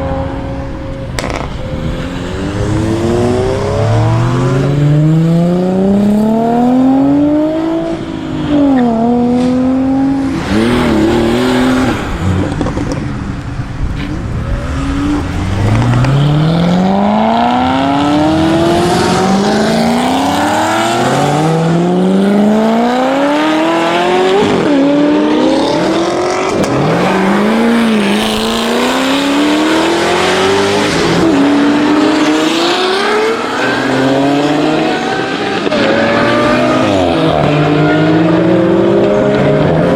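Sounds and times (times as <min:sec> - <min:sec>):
car engines accelerating hard: 0:00.0 - 0:39.9.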